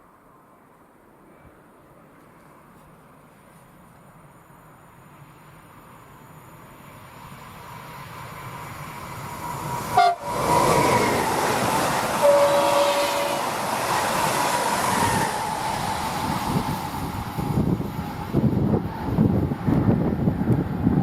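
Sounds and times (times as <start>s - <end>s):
electric train passing: 3.1s - 21.0s
train horn: 10.0s - 11.2s, 12.1s - 13.7s.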